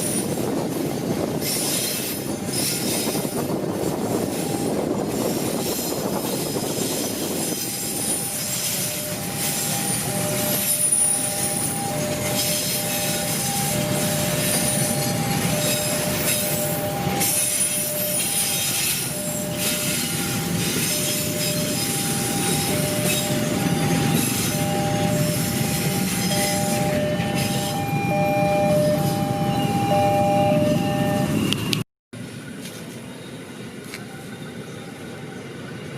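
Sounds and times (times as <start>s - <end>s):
train wheels rumbling on rails: 0.0s - 35.9s
two-tone warning beeps: 7.7s - 31.8s.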